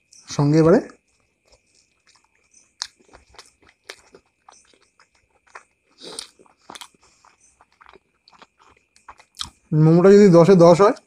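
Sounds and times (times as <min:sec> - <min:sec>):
crunchy chewing: 0:00.0 - 0:09.9
wet mouth clicks: 0:01.5 - 0:09.6.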